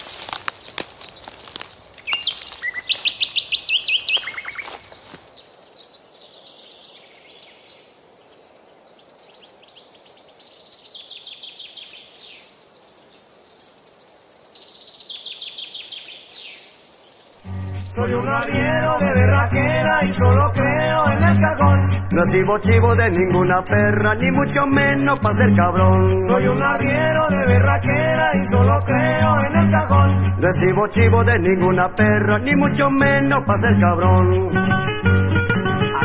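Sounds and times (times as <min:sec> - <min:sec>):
wild birds singing: 0:00.0 - 0:21.2.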